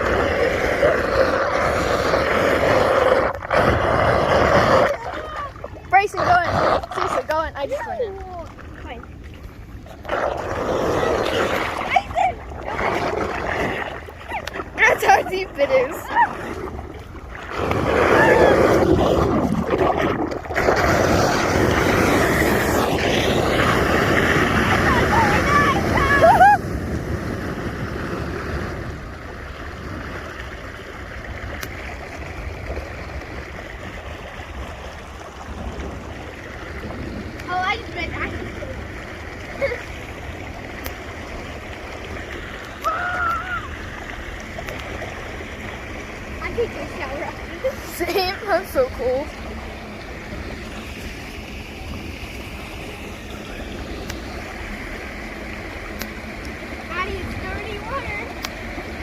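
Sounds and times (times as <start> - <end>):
floodwater rushing: 0.0 - 59.0
person crying out: 18.1 - 18.7, 25.8 - 26.6, 42.8 - 43.8.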